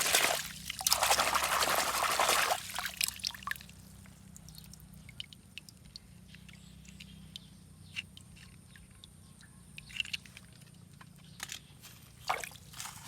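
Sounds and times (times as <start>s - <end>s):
water pouring: 0.0s - 3.7s
water dripping: 0.0s - 6.1s.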